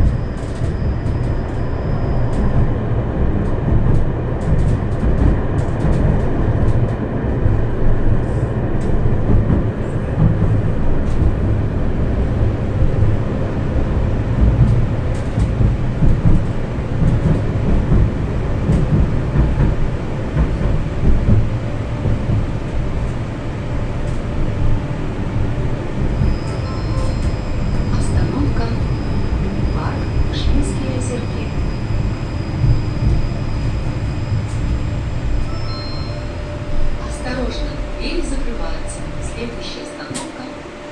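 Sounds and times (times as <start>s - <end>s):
tram wheels rumbling on rails: 0.0s - 40.9s.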